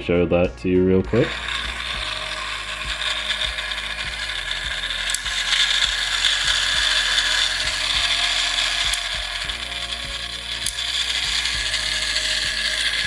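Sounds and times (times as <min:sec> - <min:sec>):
toy train gear whir and rattle: 0:01.1 - 0:13.0.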